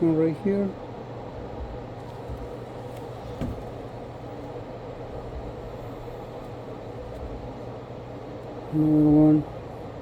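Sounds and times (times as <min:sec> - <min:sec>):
low mechanical hum: 0:00.0 - 0:10.0
faint knock: 0:03.3 - 0:03.8.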